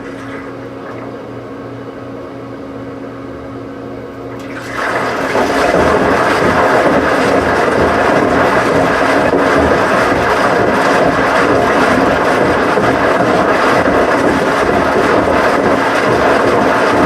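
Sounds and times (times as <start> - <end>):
washing machine humming: 0.0 - 17.0
water rushing through machine: 4.3 - 17.0.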